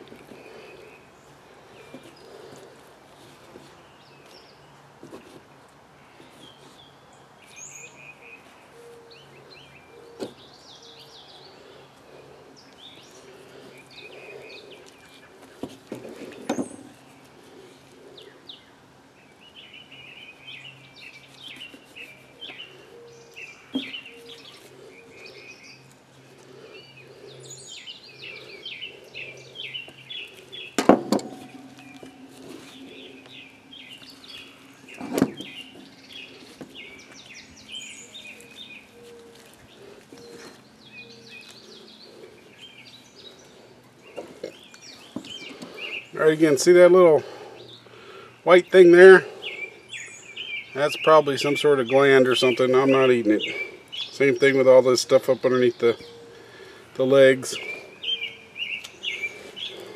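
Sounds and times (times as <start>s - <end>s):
birds singing and chirping: 0.0s - 59.9s.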